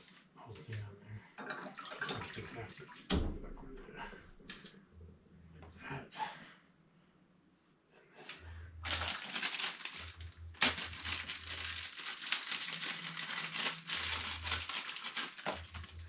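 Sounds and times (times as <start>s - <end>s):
low hum: 3.1s - 7.1s
crinkling and rustling with clicks: 8.8s - 16.0s.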